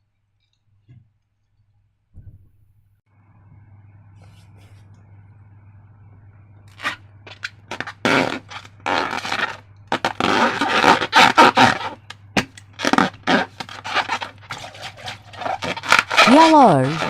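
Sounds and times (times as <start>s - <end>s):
wet slime squelching: 12.8s - 17.0s.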